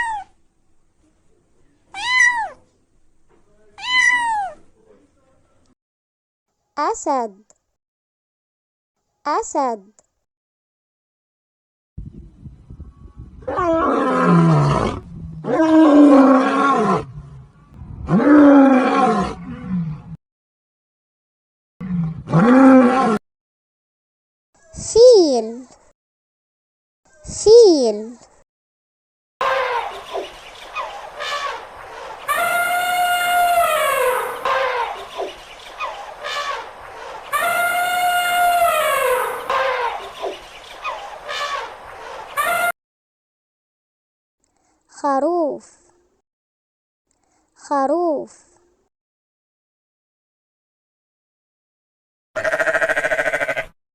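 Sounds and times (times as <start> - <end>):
lion roaring: 13.4 - 20.2, 21.8 - 23.2
elephant trumpeting: 29.4 - 42.7, 52.4 - 53.6.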